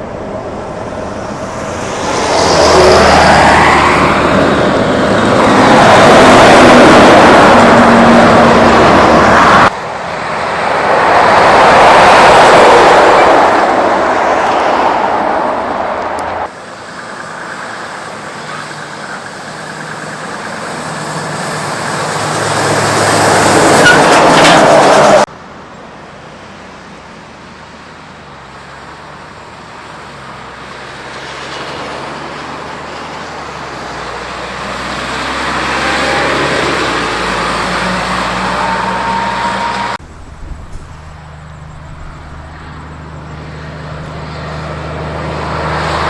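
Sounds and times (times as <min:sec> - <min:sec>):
quieter truck approaching: 0:00.0 - 0:46.0
truck passing close: 0:00.0 - 0:46.0.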